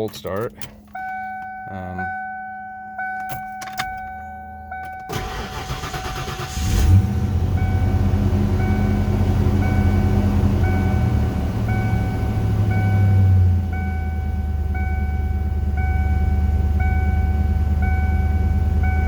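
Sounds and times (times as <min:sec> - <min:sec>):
car starter cranking: 0:00.0 - 0:01.6, 0:03.1 - 0:07.8
dashboard warning chime: 0:00.0 - 0:06.5, 0:07.3 - 0:19.0
car engine idling: 0:00.0 - 0:19.0.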